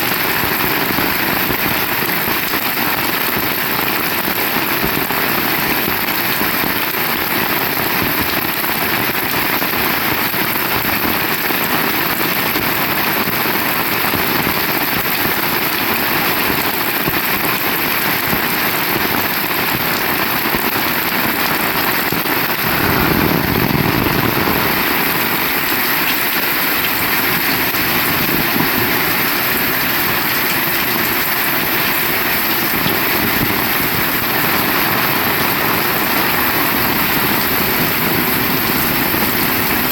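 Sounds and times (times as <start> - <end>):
heavy rain: 0.0 - 39.9
brief low rumble: 22.6 - 25.6.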